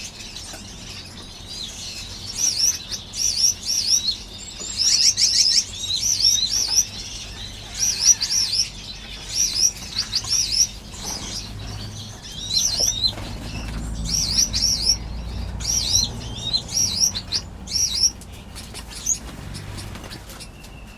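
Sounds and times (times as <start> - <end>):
finches chirping: 0.3 - 20.9
wings fluttering: 9.3 - 20.9.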